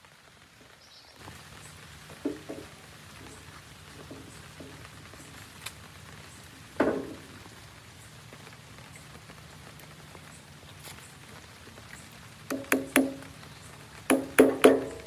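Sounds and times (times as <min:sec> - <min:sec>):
steady low hiss: 0:01.2 - 0:15.0
sharp knock with ringing: 0:12.5 - 0:13.3, 0:14.1 - 0:15.0.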